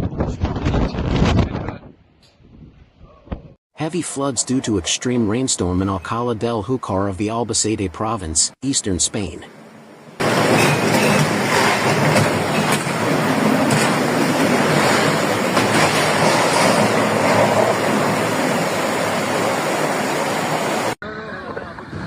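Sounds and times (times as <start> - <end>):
floodwater rushing roar: 10.1 - 21.0.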